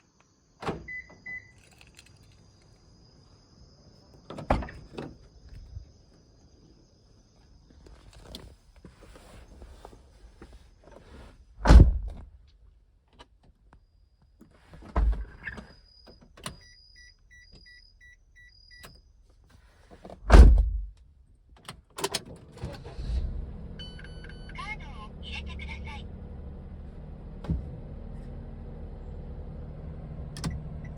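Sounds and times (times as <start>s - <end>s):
car doors shutting: 0.6s - 1.8s, 4.2s - 5.7s, 10.8s - 12.4s, 14.8s - 16.6s, 20.0s - 20.9s, 26.2s - 30.9s
car engine starting and idling: 21.8s - 30.9s.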